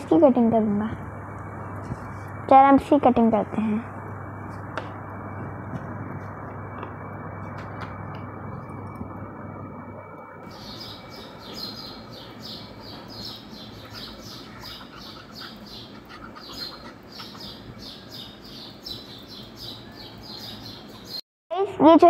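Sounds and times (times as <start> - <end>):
small birds chirping: 10.4 - 21.2.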